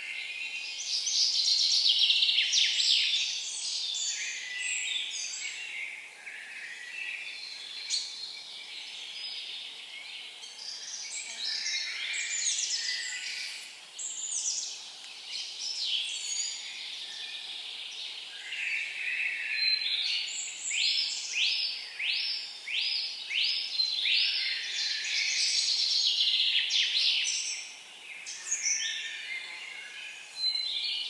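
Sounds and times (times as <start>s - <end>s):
songbirds singing: 0.0s - 31.0s.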